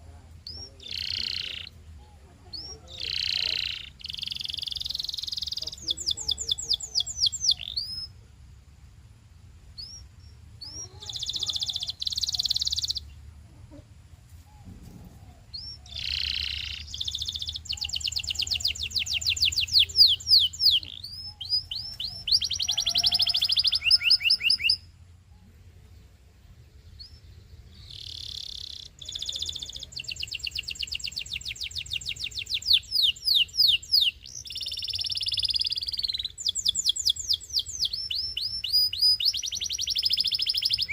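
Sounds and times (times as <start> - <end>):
canary singing trills: 0.0 - 8.4, 9.7 - 13.8, 14.4 - 40.9
faint low hum: 0.0 - 40.9.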